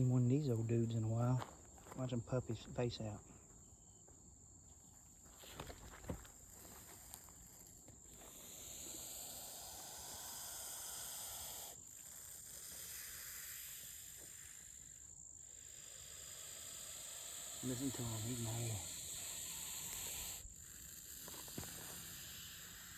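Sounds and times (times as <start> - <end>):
insects chirring: 0.0 - 22.9
snake hissing: 6.1 - 22.9.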